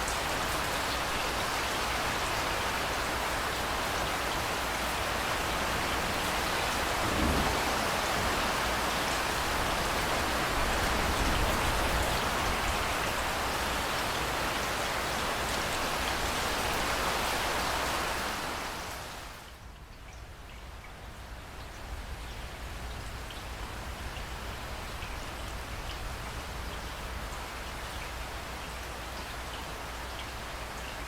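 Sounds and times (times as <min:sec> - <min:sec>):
heavy rain falling: 0:00.0 - 0:19.6
low thunder rumbling: 0:06.8 - 0:10.0.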